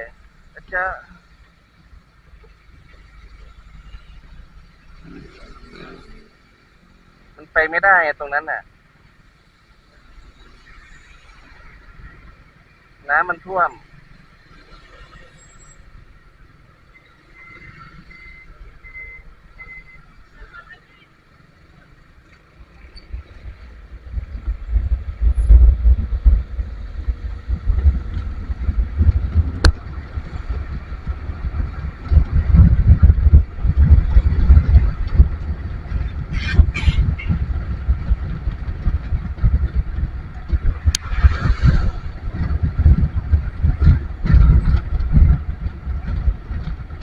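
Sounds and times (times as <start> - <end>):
road traffic: 0.0 - 47.0
short high beeps: 17.3 - 20.1
wind buffeting microphone: 22.5 - 47.0.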